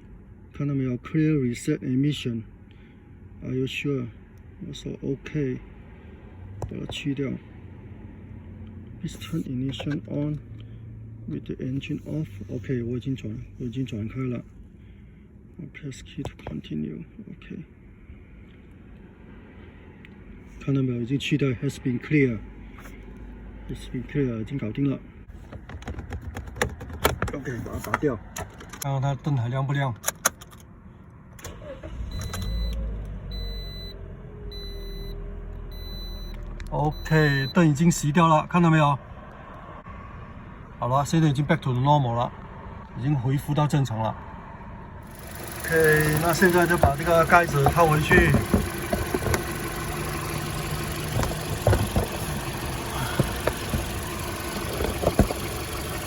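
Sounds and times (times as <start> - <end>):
car engine starting and idling: 0.0 - 15.5, 30.0 - 38.3, 44.9 - 56.0
car warning chime beeping: 31.6 - 37.8, 45.1 - 56.0.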